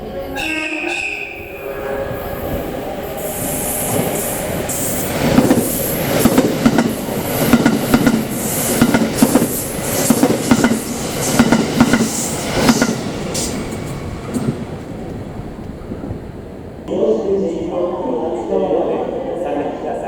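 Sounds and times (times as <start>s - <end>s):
electric train running hum: 0.0s - 16.9s.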